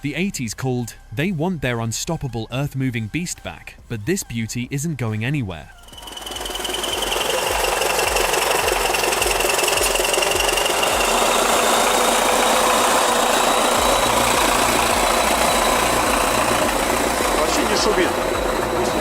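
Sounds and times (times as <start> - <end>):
bulldozer diesel engine running: 5.8 - 19.0
high whine: 5.8 - 19.0.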